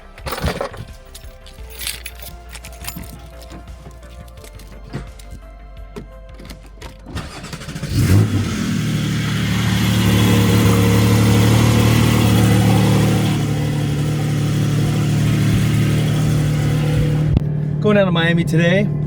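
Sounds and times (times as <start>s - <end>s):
car engine starting and idling: 7.1s - 19.0s.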